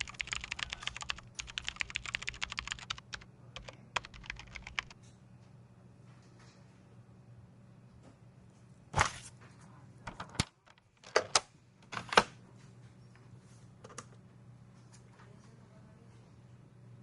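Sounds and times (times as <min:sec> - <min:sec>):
keyboard keys clacking: 0:00.0 - 0:05.0
low room hum: 0:00.0 - 0:17.0.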